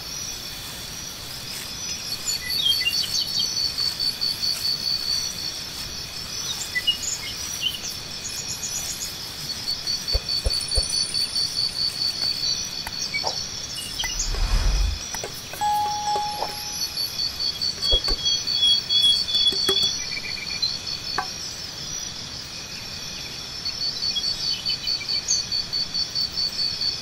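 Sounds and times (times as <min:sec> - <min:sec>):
insects chirping: 0:00.0 - 0:27.0
bird chirps: 0:13.0 - 0:21.3
low rumble: 0:13.8 - 0:15.1.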